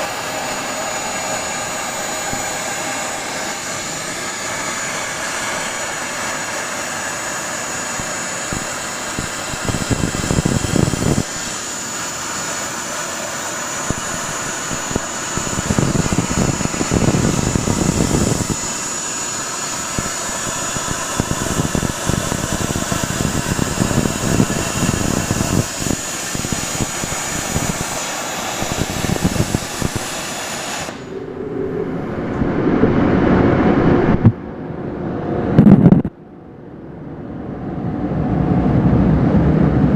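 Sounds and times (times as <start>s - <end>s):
plasma torch hissing: 0.0s - 31.1s
machine rumbling: 13.4s - 39.9s.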